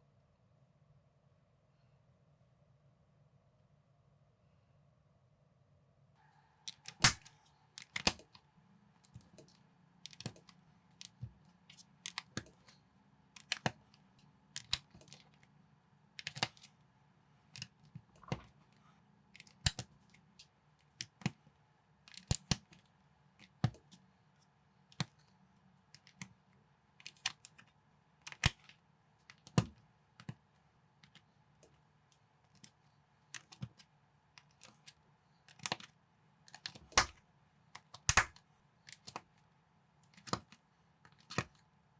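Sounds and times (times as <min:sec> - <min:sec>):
faint steady hum: 0:00.0 - 0:41.9
plastic bricks clicking together: 0:14.6 - 0:15.3, 0:37.8 - 0:39.2.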